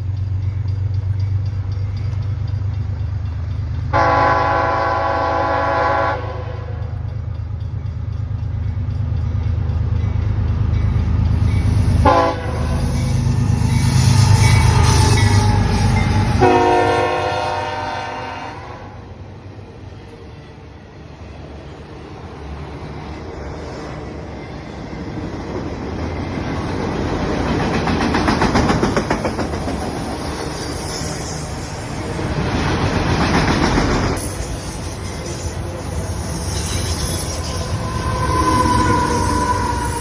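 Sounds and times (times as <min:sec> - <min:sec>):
diesel locomotive engine rumble: 0:00.0 - 0:40.0
train horn blasts: 0:03.9 - 0:07.0, 0:12.0 - 0:12.9, 0:14.6 - 0:19.2, 0:37.1 - 0:40.0.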